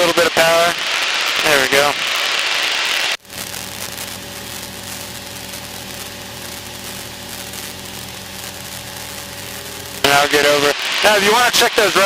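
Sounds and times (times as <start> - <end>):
propeller plane engine droning: 3.3 - 10.4.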